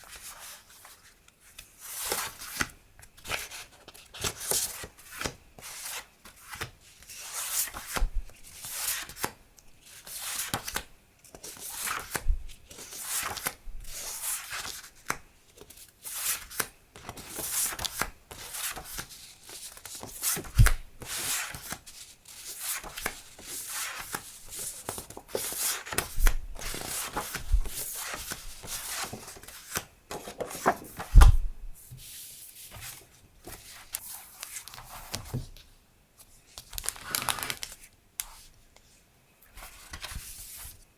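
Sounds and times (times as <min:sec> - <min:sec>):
paper rustling and crinkling: 0:11.4 - 0:35.7, 0:36.5 - 0:38.5.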